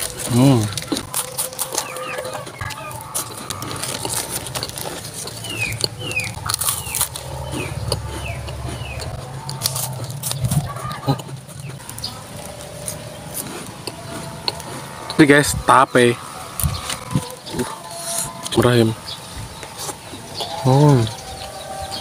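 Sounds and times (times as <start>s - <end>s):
crunching and chewing crackers: 0.0s - 22.0s
bird chirps: 0.3s - 22.0s.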